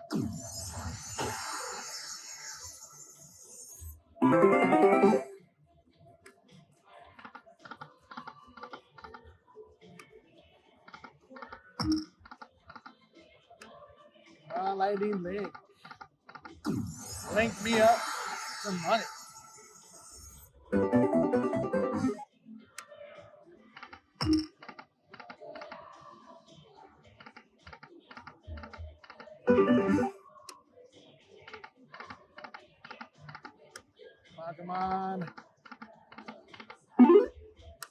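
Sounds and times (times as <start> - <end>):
slot machine clicks: 4.2 - 5.3, 29.5 - 30.1, 37.0 - 37.3.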